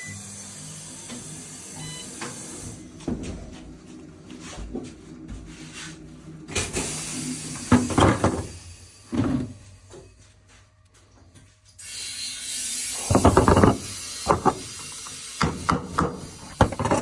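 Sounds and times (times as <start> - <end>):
machine mechanical hum: 0.0 - 17.0
knocks and clattering: 13.1 - 14.6.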